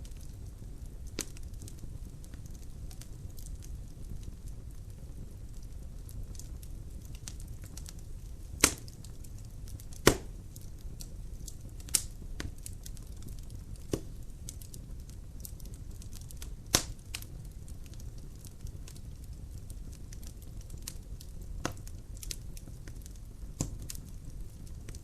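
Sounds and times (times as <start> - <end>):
fire burning rumble: 0.0 - 25.0
small pops from fire: 0.0 - 25.0
logs cracking sharply: 8.6 - 8.9, 9.9 - 10.3.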